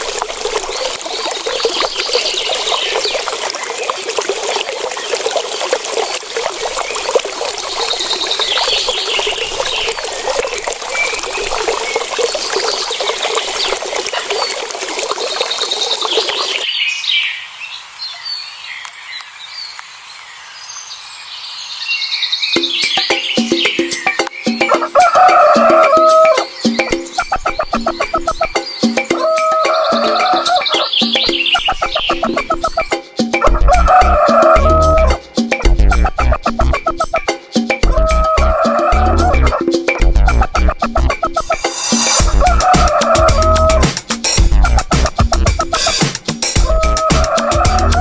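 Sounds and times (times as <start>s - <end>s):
water trickling: 0.0s - 16.7s, 22.6s - 33.0s, 36.2s - 48.0s
birds chirping: 0.0s - 33.0s.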